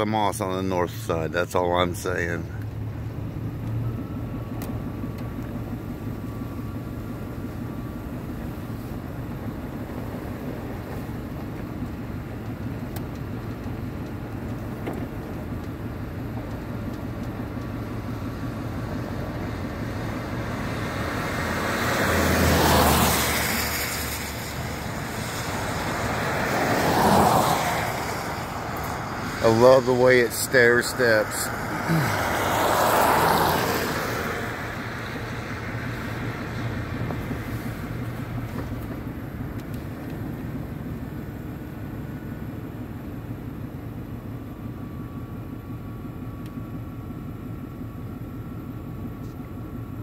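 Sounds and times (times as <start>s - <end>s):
car engine and tyre rumble: 0.0s - 50.0s
passing vehicle whoosh: 19.5s - 39.0s.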